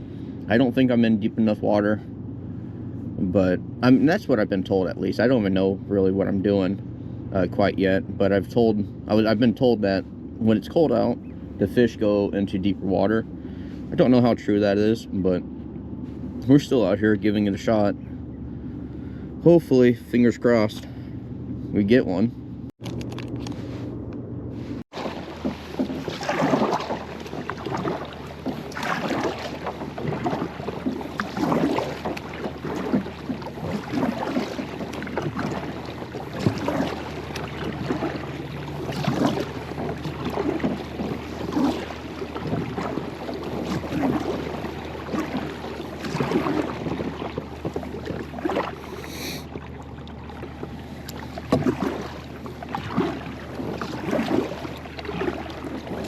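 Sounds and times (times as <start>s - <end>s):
paddle strokes in water: 9.1s - 14.8s, 22.9s - 23.9s, 24.5s - 56.0s.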